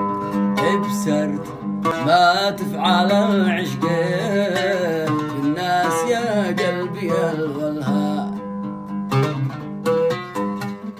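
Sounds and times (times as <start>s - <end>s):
plucked strings: 0.0s - 10.9s.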